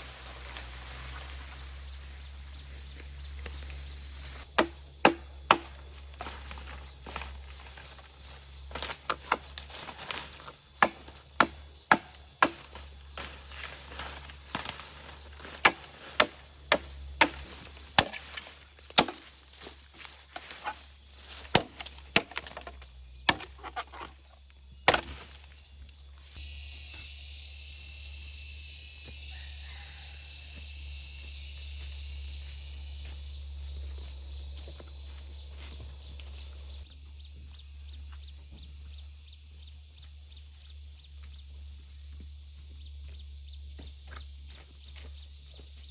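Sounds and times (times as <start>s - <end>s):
insects trilling: 0.0s - 45.9s
wood being chopped: 4.4s - 8.0s, 8.7s - 24.2s, 24.8s - 25.6s.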